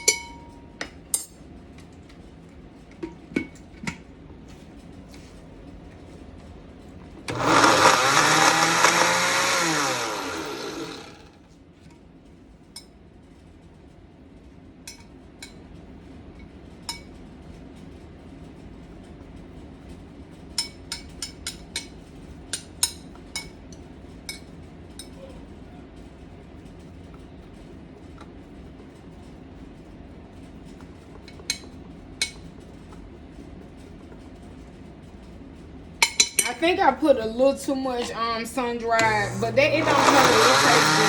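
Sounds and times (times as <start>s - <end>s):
electric blender running: 7.2s - 11.4s, 38.9s - 41.0s.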